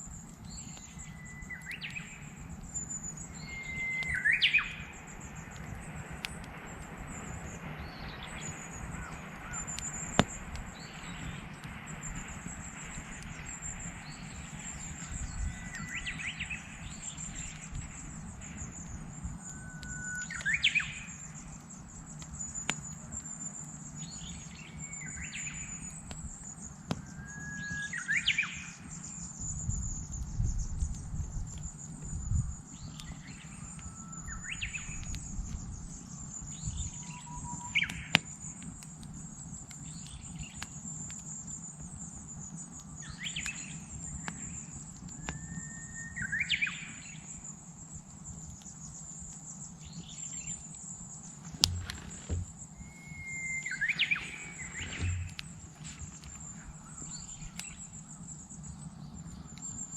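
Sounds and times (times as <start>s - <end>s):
campfire crackling and popping: 0.0s - 45.6s, 46.2s - 59.9s
bush warbler singing: 0.5s - 6.0s, 6.6s - 23.0s, 49.8s - 59.6s.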